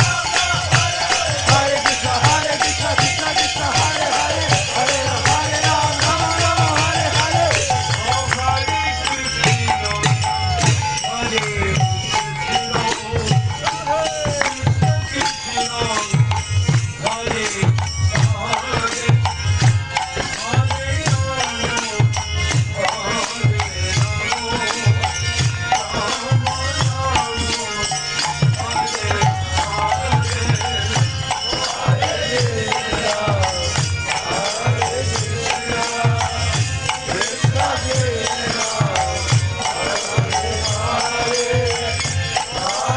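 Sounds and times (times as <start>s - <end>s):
hand drum beat: 0.0s - 8.8s
voices chanting: 0.0s - 10.0s, 28.6s - 42.9s.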